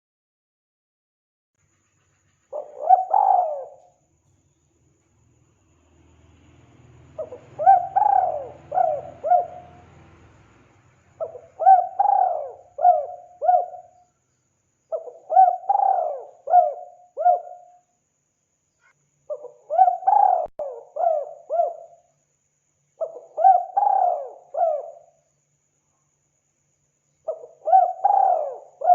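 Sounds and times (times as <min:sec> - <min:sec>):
dove cooing: 0:02.5 - 0:04.0, 0:07.2 - 0:10.0, 0:11.2 - 0:14.0, 0:14.9 - 0:17.8, 0:19.3 - 0:22.0, 0:23.0 - 0:25.1, 0:27.3 - 0:28.9.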